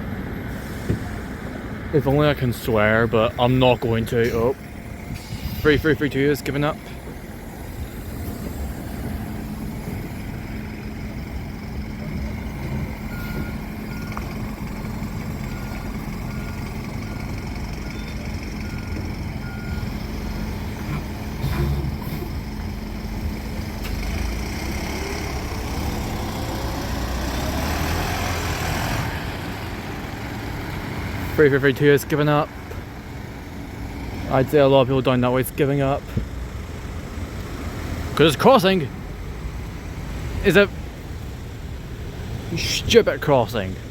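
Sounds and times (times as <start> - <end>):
bus engine running: 0.0 - 43.9
vehicle pulling away: 0.1 - 43.9
reversing alarm beeps: 12.0 - 14.3, 15.4 - 20.0.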